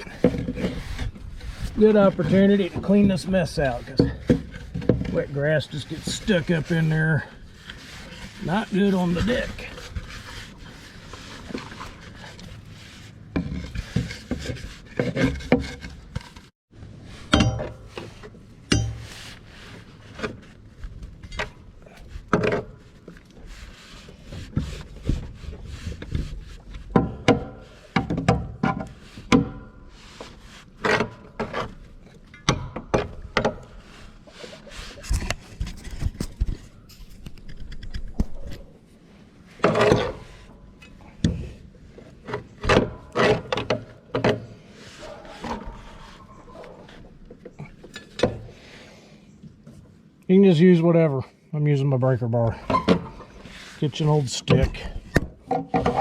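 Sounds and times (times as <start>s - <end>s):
metal bar scraping mower deck: 0.0s - 20.6s, 39.4s - 47.1s, 52.5s - 56.0s.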